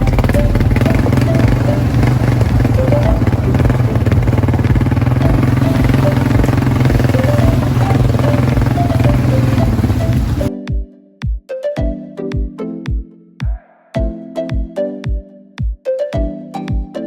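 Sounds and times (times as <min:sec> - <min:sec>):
quad bike engine running: 0:00.0 - 0:10.5.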